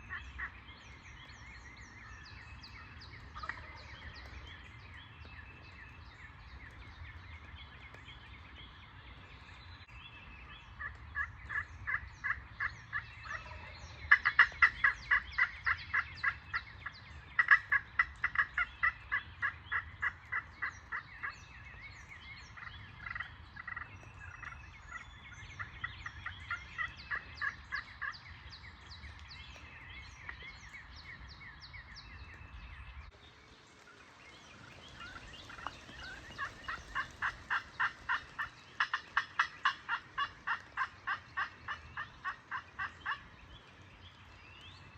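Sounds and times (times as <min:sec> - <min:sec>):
small birds chirping: 0:00.0 - 0:44.9
turkey yelping: 0:35.5 - 0:43.2.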